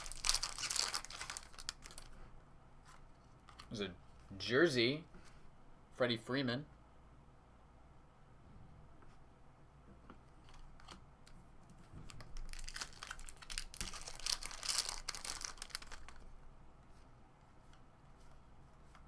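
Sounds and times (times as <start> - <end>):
card pack wrapper tearing: 0.0 - 2.1, 12.3 - 16.2
wrapper crinkling: 0.0 - 2.2, 12.2 - 16.3.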